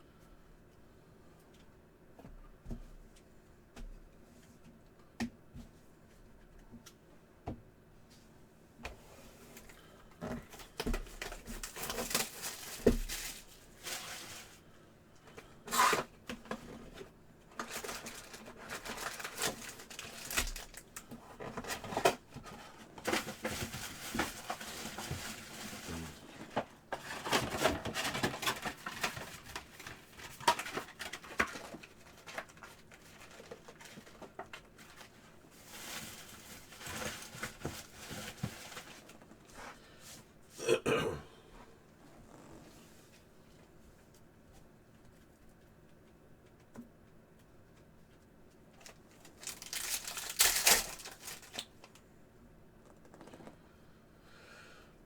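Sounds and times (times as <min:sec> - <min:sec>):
cards and wrappers rustling: 0:10.3 - 0:14.6, 0:15.7 - 0:39.5, 0:48.8 - 0:52.0
wrapper snapping and tearing: 0:17.6 - 0:21.0, 0:48.8 - 0:51.8.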